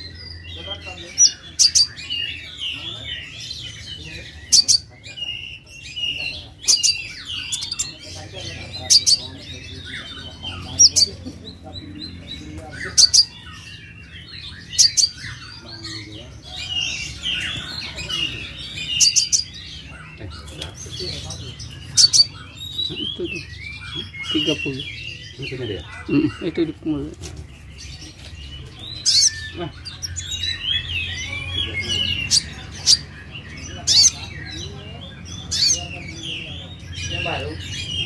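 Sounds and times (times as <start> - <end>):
sharp loud bird notes: 0.0 - 38.0
sunbird twittering song: 0.0 - 38.0.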